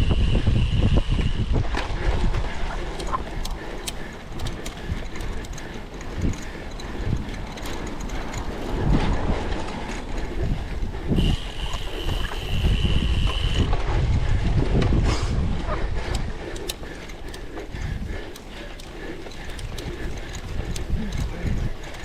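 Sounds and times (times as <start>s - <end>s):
bike rattling over bumps: 0.0s - 22.0s
wind buffeting microphone: 0.0s - 22.0s
steady high squeal: 11.1s - 13.7s.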